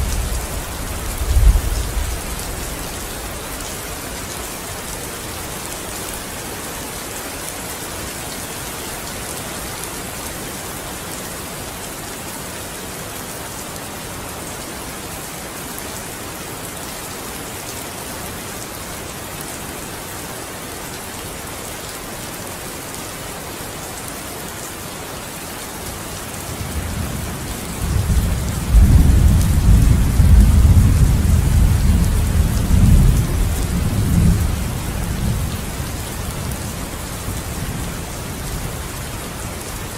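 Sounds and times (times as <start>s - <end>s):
thunder rumbling: 0.0s - 2.3s
steady rain hissing: 0.0s - 39.9s.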